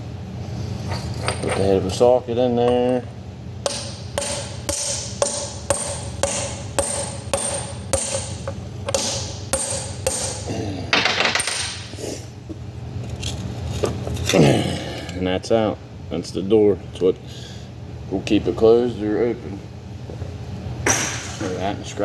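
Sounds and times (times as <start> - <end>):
hammer striking metal: 2.7 - 11.8.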